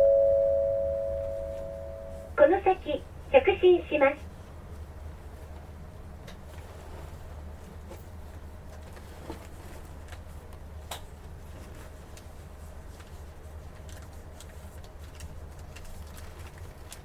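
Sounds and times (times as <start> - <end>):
bus diesel engine drone: 0.0 - 4.2.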